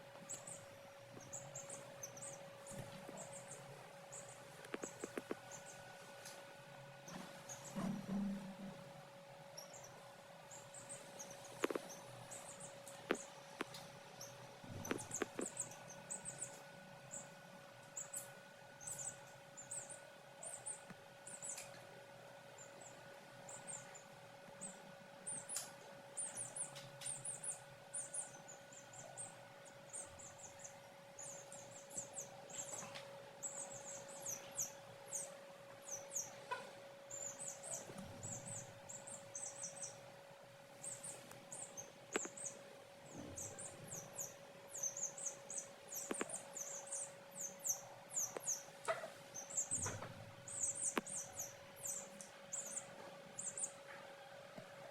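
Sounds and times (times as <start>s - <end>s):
steady hum: 0.0s - 54.9s
chicks peeping: 40.8s - 53.8s.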